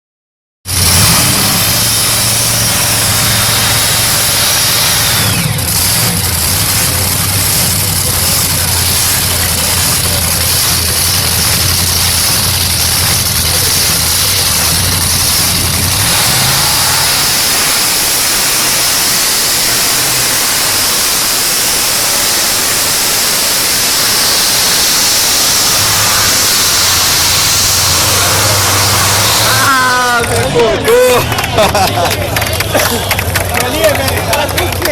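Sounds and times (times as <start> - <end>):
tractor engine running loudly: 0.6 - 34.9
steady hiss: 16.4 - 29.6.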